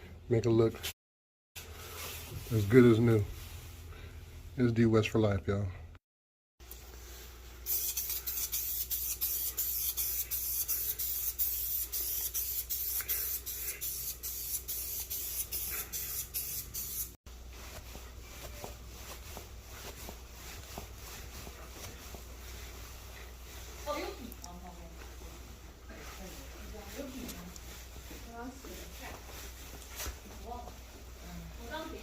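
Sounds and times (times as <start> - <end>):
rustling: 1.6 - 4.2, 17.3 - 32.0.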